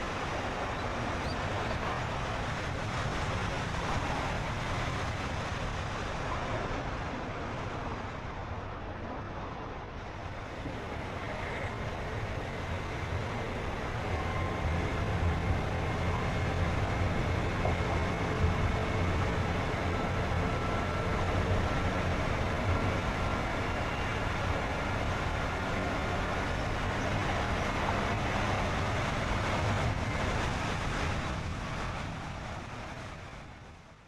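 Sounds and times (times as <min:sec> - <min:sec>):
car driving road noise: 0:10.0 - 0:34.0.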